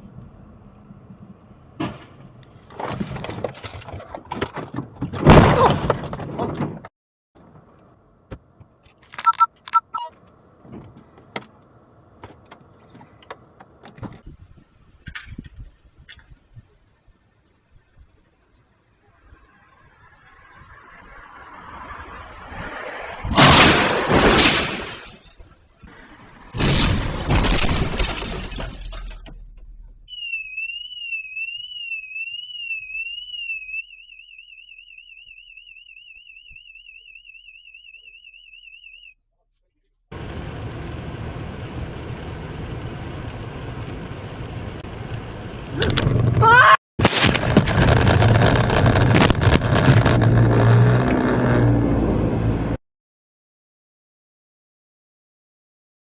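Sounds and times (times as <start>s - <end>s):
vehicle collision crunching: 1.7s - 14.2s, 23.3s - 30.1s, 47.0s - 51.3s
car alarm: 9.2s - 10.1s, 30.1s - 39.2s
two-tone electronic beeps: 9.2s - 10.2s, 30.1s - 39.2s.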